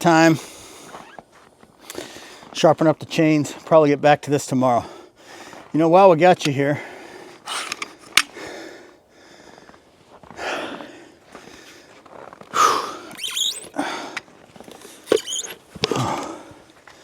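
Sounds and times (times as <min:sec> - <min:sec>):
person breathing hard and sniffing: 0:06.8 - 0:14.2
short high squeak: 0:13.1 - 0:13.8, 0:15.1 - 0:15.7.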